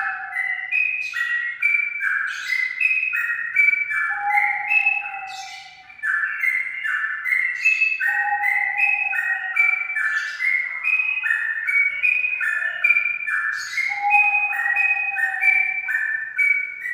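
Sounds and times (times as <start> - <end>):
bird singing whistled notes: 0.0 - 16.9.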